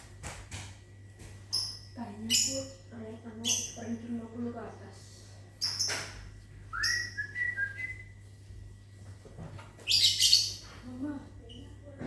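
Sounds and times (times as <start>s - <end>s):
lovebird chirp: 6.8s - 7.9s, 9.9s - 10.6s.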